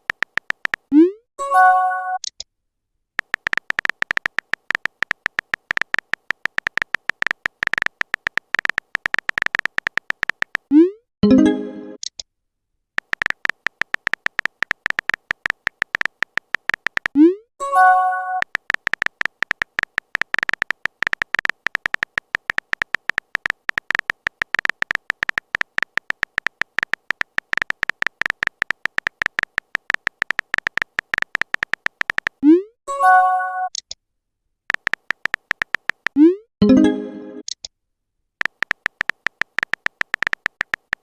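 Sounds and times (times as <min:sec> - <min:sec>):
rapid electronic typing beeps: 0:00.0 - 0:00.9, 0:03.2 - 0:10.9, 0:13.0 - 0:32.4, 0:34.7 - 0:36.4, 0:38.4 - 0:41.0
message alert chime: 0:11.2 - 0:12.0, 0:36.6 - 0:37.4.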